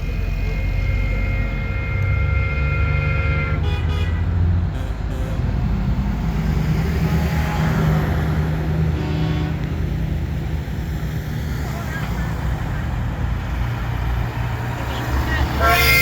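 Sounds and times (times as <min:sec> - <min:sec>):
truck engines running: 0:00.0 - 0:16.0
truck horn blasts: 0:00.3 - 0:05.5, 0:08.9 - 0:09.7, 0:15.5 - 0:16.0.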